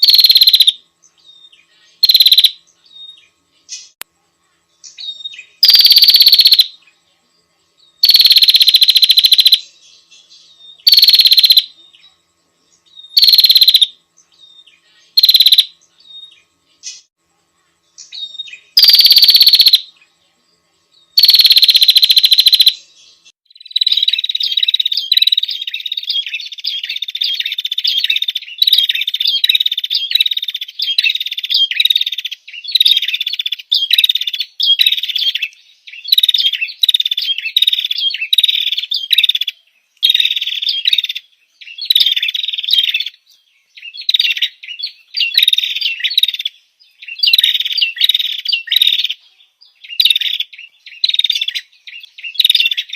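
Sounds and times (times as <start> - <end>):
bird high rapid chattering: 0.0 - 0.8, 2.0 - 2.6, 5.6 - 6.7, 8.0 - 9.7, 10.8 - 11.7, 13.2 - 13.9, 15.1 - 15.7, 18.0 - 19.9, 21.2 - 22.8, 23.7 - 43.2, 43.8 - 49.2, 49.8 - 52.9.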